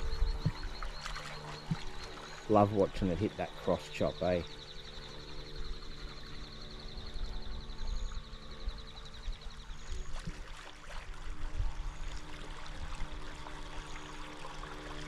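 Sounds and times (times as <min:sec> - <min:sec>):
low wind rumble: 0:00.0 - 0:01.0
water sloshing: 0:00.0 - 0:04.3, 0:10.0 - 0:14.7
steady low hum: 0:00.0 - 0:15.0.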